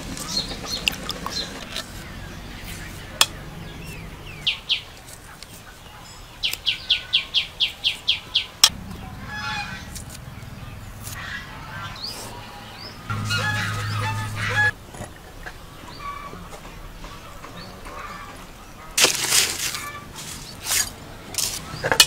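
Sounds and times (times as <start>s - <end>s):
bird chirping: 0.0s - 14.8s.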